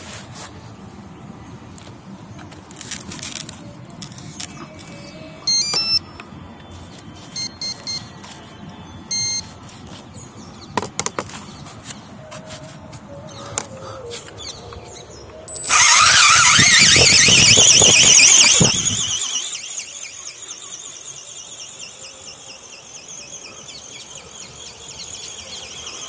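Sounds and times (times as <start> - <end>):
sharp clicks: 2.7 - 6.0, 15.5 - 20.6
electronic beeps: 5.5 - 6.2, 7.3 - 8.2, 9.1 - 9.5, 15.5 - 22.7.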